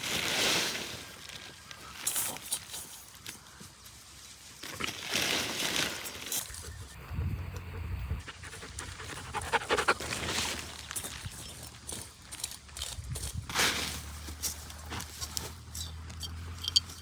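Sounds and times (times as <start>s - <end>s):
panting breaths: 8.1s - 10.7s.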